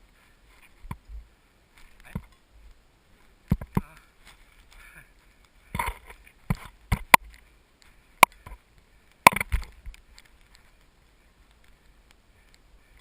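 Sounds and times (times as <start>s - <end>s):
sharp clicks and knocks: 5.7s - 7.4s, 9.2s - 10.6s.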